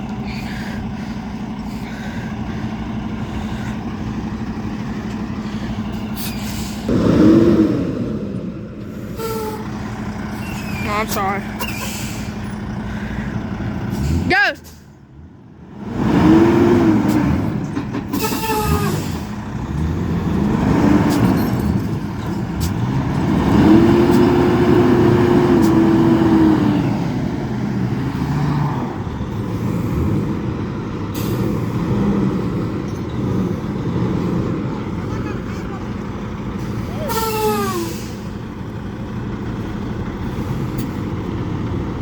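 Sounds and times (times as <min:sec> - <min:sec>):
vehicle engine revving: 0:06.8 - 0:10.4, 0:15.1 - 0:42.0.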